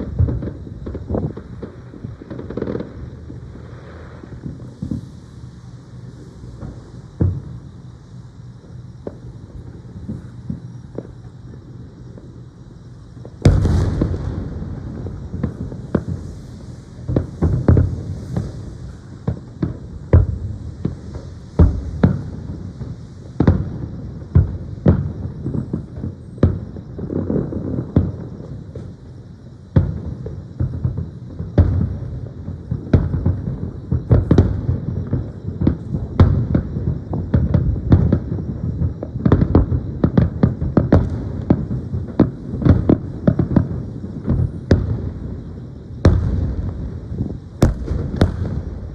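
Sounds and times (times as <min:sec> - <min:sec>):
crackling hiss of fireworks: 0:00.0 - 0:48.9
fireworks booming: 0:00.0 - 0:48.9
sharp fireworks bangs: 0:00.0 - 0:48.9.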